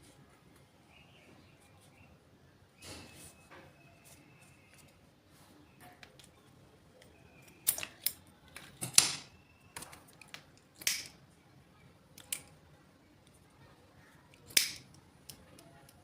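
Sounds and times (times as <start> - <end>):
sharp clicks: 14.4 - 16.0.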